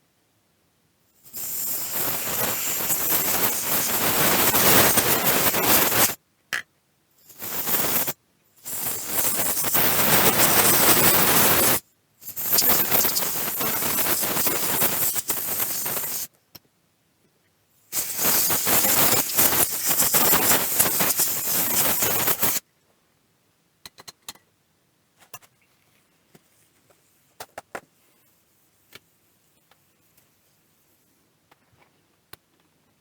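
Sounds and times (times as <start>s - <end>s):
loud steady hiss: 1.2s - 6.2s, 7.2s - 16.3s, 17.8s - 22.7s
small clicks and taps: 23.8s - 24.5s.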